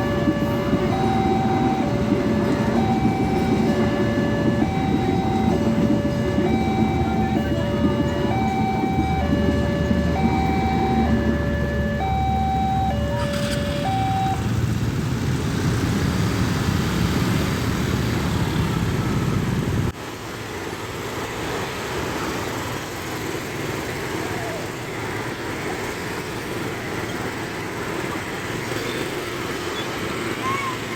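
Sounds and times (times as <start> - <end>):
level crossing two-tone alarm: 0.0 - 14.6
loud rumbling noise: 0.0 - 19.9.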